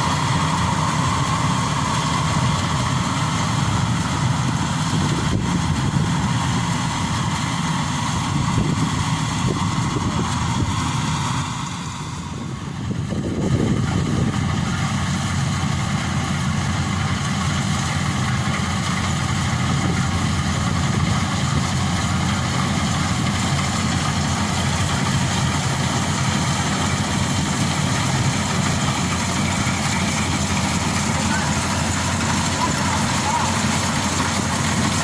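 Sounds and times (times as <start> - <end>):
combine harvester engine running: 0.0 - 35.0.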